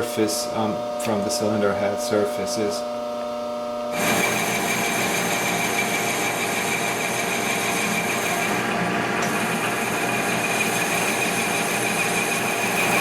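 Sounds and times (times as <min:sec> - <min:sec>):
metal lathe cutting: 0:03.9 - 0:13.0.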